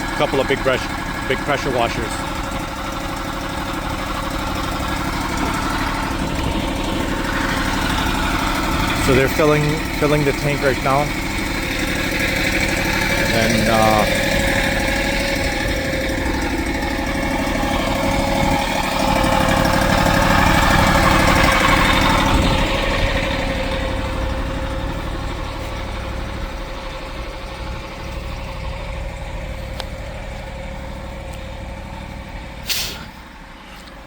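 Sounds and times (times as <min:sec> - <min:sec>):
engine idling: 0:00.0 - 0:34.0
short hiss: 0:32.6 - 0:33.2.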